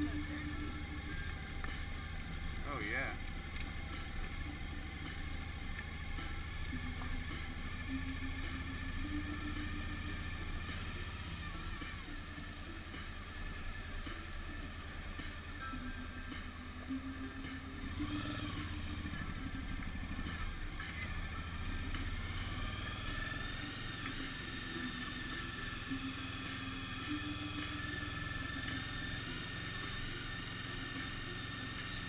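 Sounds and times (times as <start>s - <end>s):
motorcycle engine rumbling: 0.0s - 32.0s.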